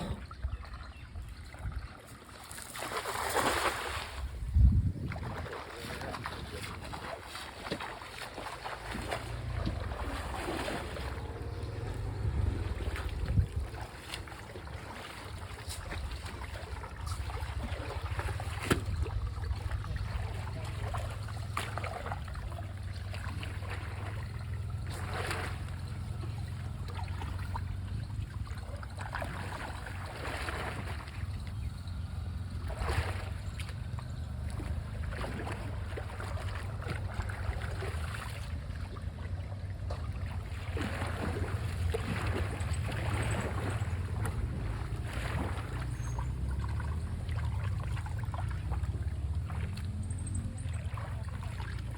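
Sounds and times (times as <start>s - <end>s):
water-like swishes: 1.7s - 51.9s
low wind rumble on microphone: 4.1s - 7.8s, 8.9s - 21.6s.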